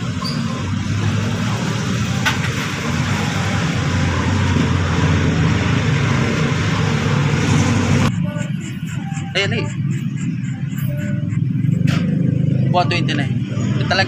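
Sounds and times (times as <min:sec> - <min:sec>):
motorcycle engine running: 0:00.1 - 0:14.0.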